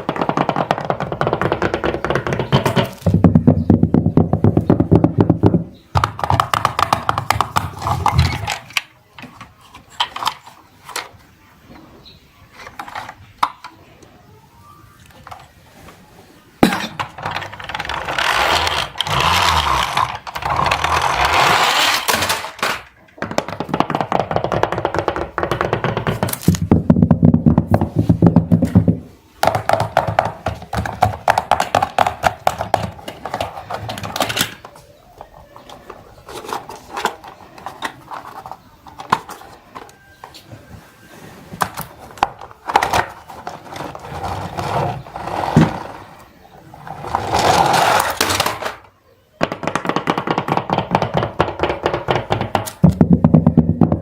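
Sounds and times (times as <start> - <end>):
plastic toy cars clattering: 0.0 - 11.4, 12.5 - 13.9, 15.0 - 16.0, 16.6 - 54.0
toy cars rattling rolling: 6.0 - 11.2, 17.0 - 26.7, 29.4 - 40.2, 41.5 - 53.8.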